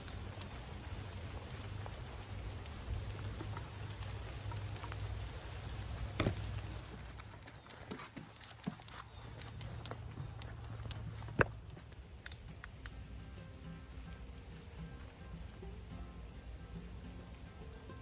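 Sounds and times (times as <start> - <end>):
drops ticking: 0.0 - 18.0
light rain falling: 0.0 - 18.0.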